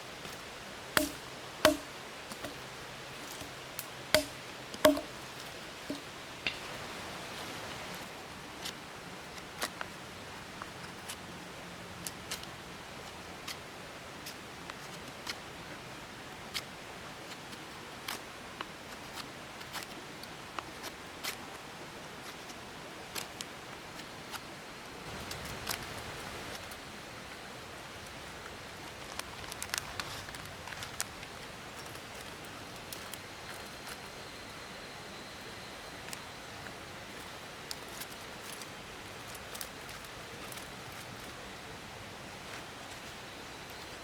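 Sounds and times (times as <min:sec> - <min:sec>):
rustling: 0:00.0 - 0:08.8, 0:36.0 - 0:44.0
light rain hissing: 0:00.0 - 0:44.0.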